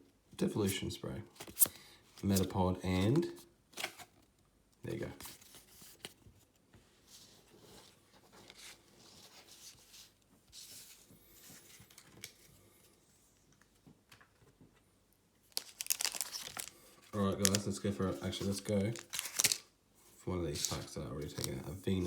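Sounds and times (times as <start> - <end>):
foil wrappers crinkling: 15.5 - 19.7.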